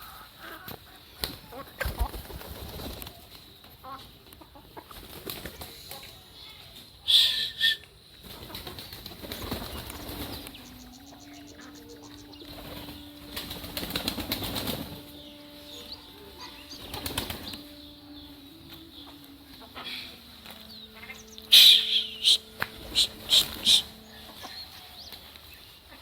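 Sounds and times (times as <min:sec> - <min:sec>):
bird wings flapping: 0:00.6 - 0:03.5, 0:04.9 - 0:05.7, 0:08.2 - 0:17.7, 0:21.5 - 0:24.0
faint steady hum: 0:07.8 - 0:26.0
faint high chirping: 0:08.9 - 0:26.0.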